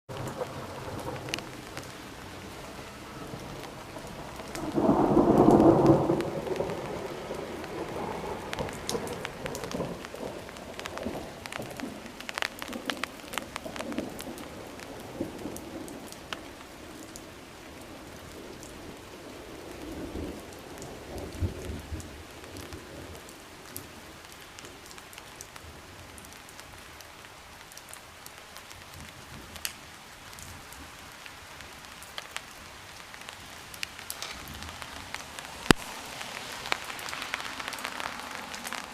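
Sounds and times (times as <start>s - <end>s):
rumble of thunder: 0.1s - 1.9s, 3.2s - 16.2s
steady rain falling: 0.1s - 38.9s.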